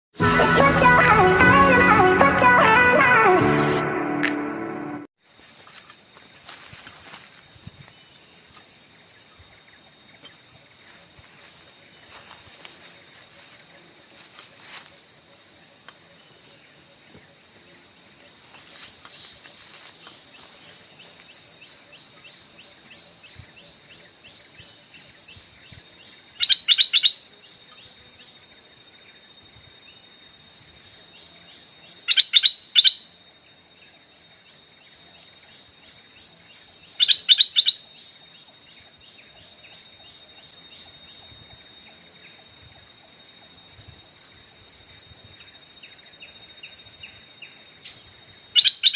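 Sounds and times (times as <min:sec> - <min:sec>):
steady high background tone: 0:00.2 - 0:05.1
bird calling: 0:26.4 - 0:27.2, 0:32.1 - 0:33.1, 0:36.9 - 0:38.6, 0:48.6 - 0:48.9.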